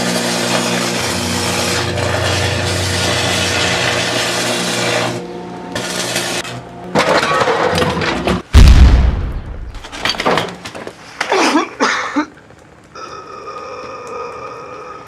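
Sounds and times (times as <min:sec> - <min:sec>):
noisy crashing: 0:06.9 - 0:10.6
deep boom: 0:08.5 - 0:09.8.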